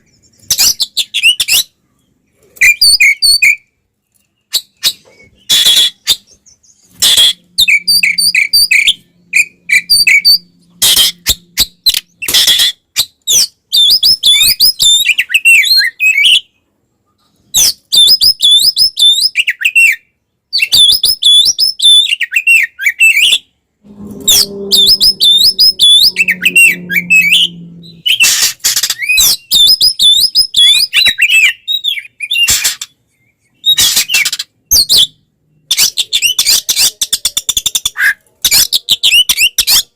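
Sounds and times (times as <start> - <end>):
bird singing fast warbling phrases: 4.5 - 16.5, 20.6 - 39.9
harsh rasping bird calls: 4.6 - 16.2, 23.1 - 31.5.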